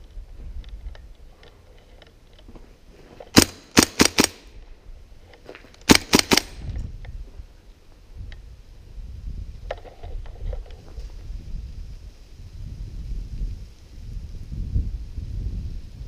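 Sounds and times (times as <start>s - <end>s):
airsoft gun shots: 3.4s - 4.5s, 5.9s - 6.6s.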